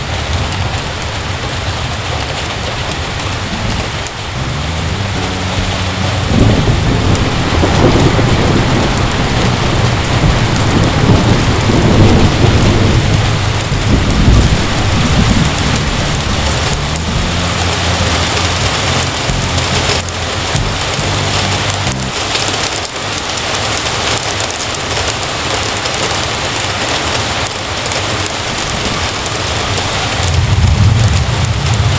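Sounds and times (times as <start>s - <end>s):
heavy rain: 0.0s - 31.9s
thunder rumbling: 3.1s - 22.2s, 28.0s - 31.9s.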